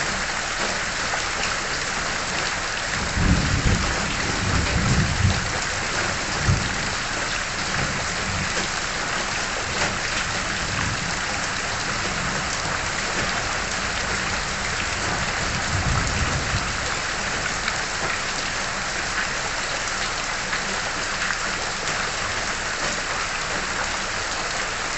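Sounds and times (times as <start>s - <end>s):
rain splashing on surfaces: 0.0s - 24.9s
low rumble of thunder: 2.8s - 18.2s.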